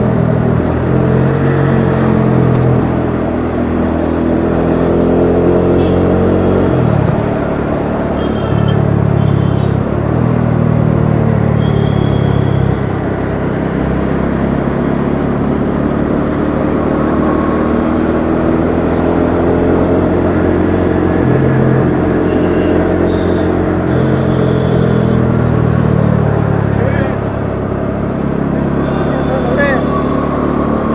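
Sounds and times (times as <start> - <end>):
wind and road noise: 0.0 - 30.9.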